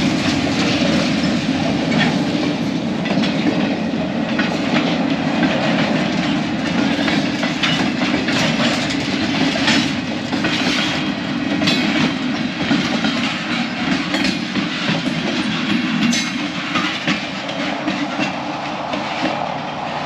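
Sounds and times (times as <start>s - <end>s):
freight cars rail rumble: 0.0s - 20.0s
wheels clicking over rail joints: 0.0s - 20.0s.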